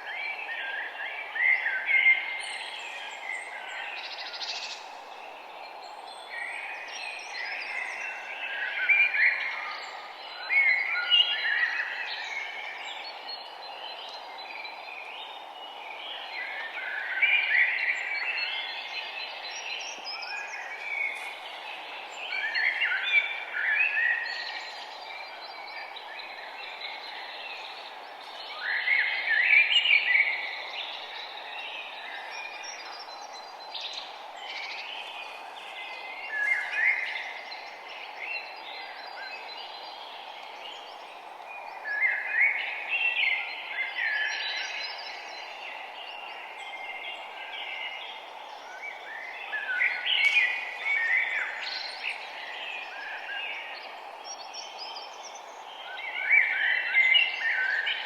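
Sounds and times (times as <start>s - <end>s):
songbirds chirping: 0.0s - 58.0s
steady background hiss: 0.0s - 58.0s.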